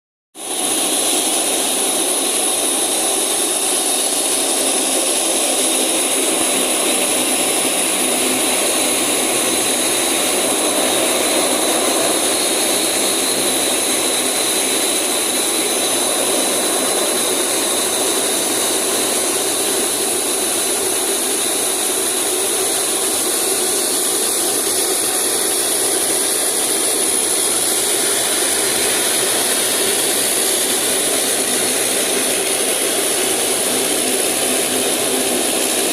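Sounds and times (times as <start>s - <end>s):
high-pitched engine whine: 0.4s - 35.9s
turboprop engines droning: 0.4s - 35.9s.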